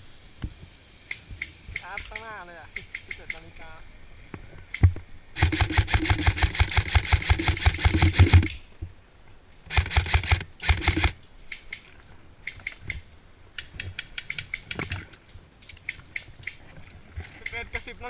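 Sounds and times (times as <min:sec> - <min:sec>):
airsoft rifle automatic fire: 0:05.4 - 0:08.6, 0:09.7 - 0:11.2.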